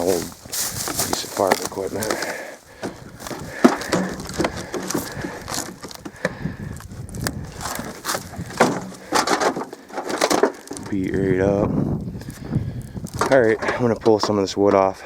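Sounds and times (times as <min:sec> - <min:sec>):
wooden boards knocking and scraping: 0:00.0 - 0:06.5, 0:07.2 - 0:11.1, 0:13.0 - 0:14.6.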